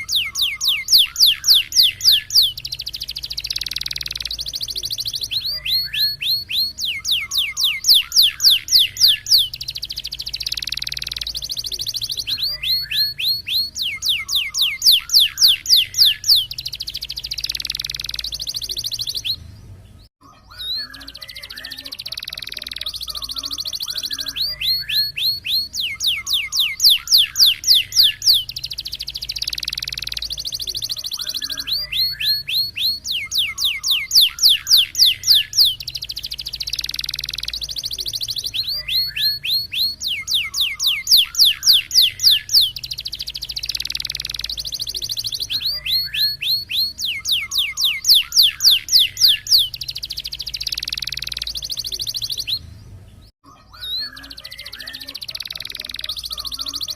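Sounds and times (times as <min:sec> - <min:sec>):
canary singing: 0:00.0 - 0:56.9.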